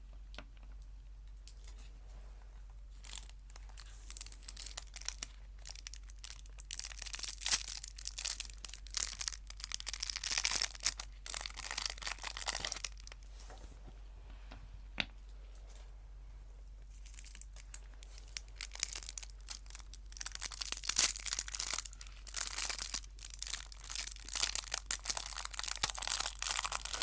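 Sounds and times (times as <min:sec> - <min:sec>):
wrapper crinkling: 0:02.9 - 0:13.4, 0:16.9 - 0:27.0.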